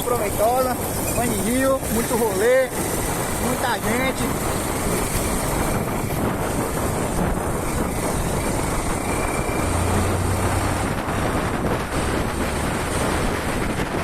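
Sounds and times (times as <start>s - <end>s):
heavy wind rush: 0.0s - 14.0s
small motorcycle engine running: 0.0s - 14.0s.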